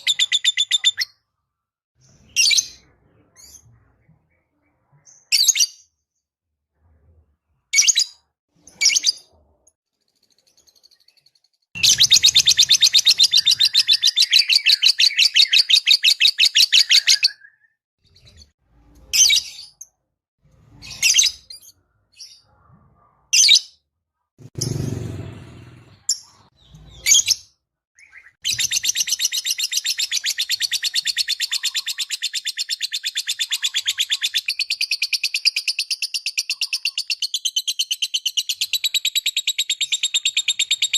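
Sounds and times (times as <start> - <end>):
bird chirps: 0.0 - 1.2, 7.7 - 18.5, 26.1 - 40.9.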